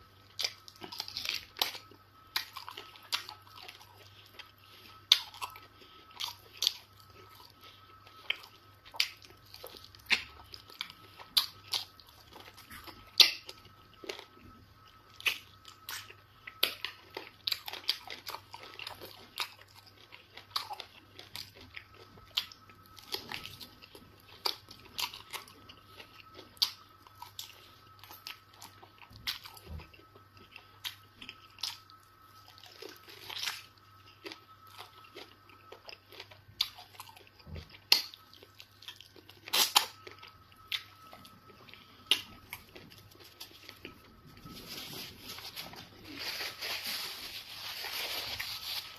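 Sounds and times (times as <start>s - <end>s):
wet chewing and smacking: 0.2s - 46.1s.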